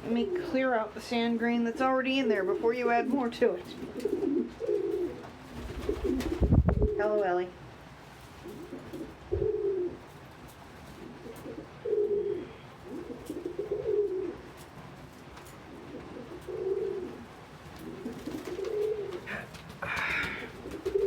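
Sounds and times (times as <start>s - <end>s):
pigeons cooing: 3.6s - 7.0s, 8.4s - 10.1s, 10.9s - 21.0s.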